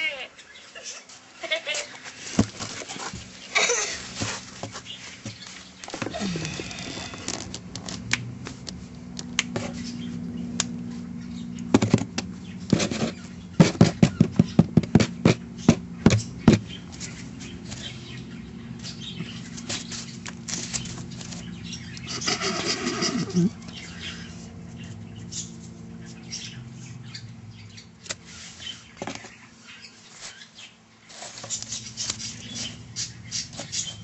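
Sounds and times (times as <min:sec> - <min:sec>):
hen knocking inside cardboard box: 0:12.7 - 0:16.8.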